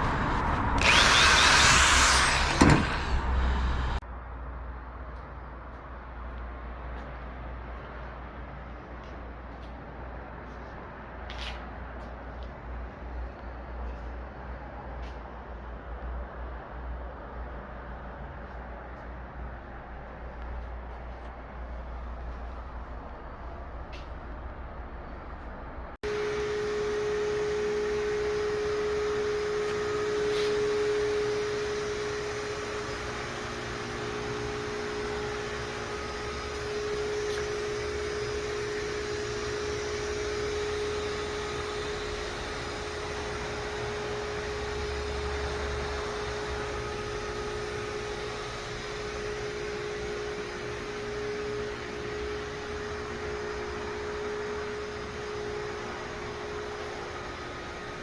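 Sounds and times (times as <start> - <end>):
small electric motor humming: 0.8 - 4.0, 26.0 - 58.0.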